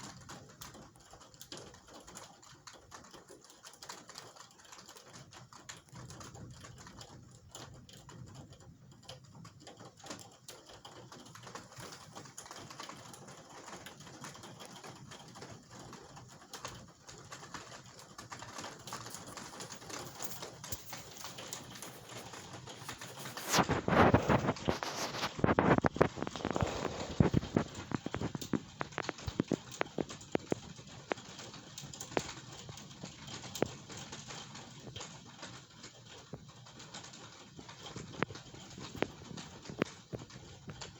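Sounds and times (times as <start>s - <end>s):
raindrops tapping: 0.1s - 40.9s.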